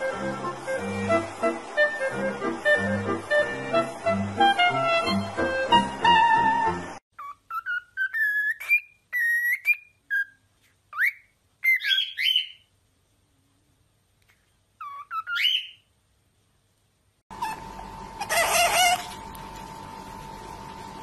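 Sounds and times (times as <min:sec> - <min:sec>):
bird whistling: 0:07.2 - 0:12.6, 0:14.8 - 0:15.8.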